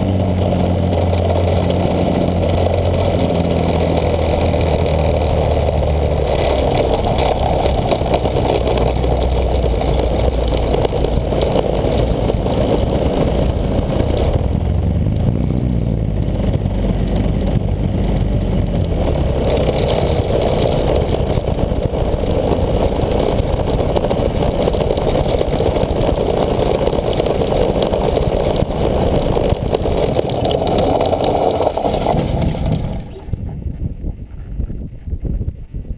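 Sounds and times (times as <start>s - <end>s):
model airplane engine running: 0.0s - 33.4s.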